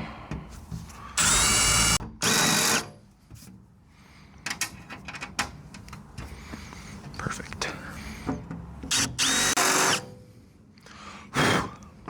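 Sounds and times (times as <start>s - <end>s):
power drill whining through metal: 1.2s - 2.9s, 8.9s - 10.1s.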